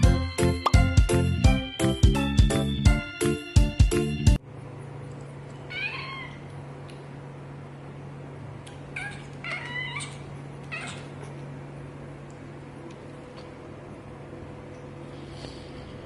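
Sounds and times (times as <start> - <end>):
steady low hum: 4.0 - 16.0
cat meowing: 5.7 - 6.4, 8.9 - 11.2.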